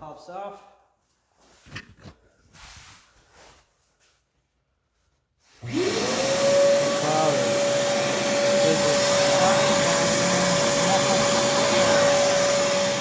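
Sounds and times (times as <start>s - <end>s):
shop vac motor whine: 5.6s - 13.0s.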